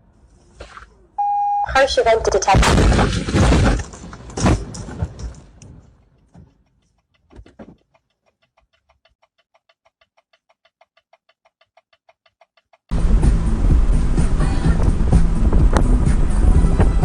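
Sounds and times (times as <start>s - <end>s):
crash noise: 2.2s - 6.0s
knocks: 7.3s - 7.8s.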